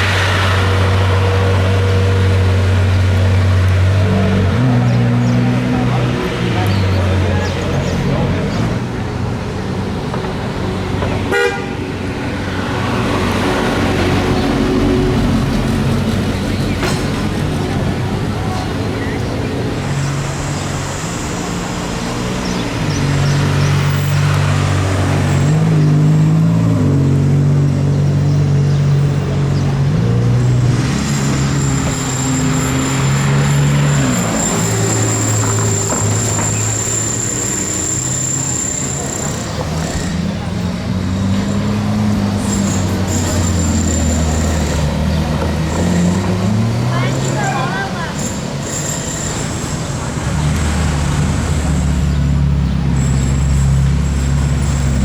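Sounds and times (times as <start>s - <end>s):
car engines rumbling in traffic: 0.0s - 55.0s
short car horn toot: 11.3s - 11.8s.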